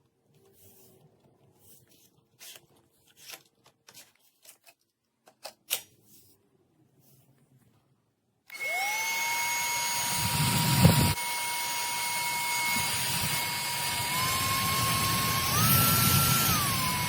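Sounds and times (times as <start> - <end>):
stick vacuum motor whining: 8.5 - 17.0.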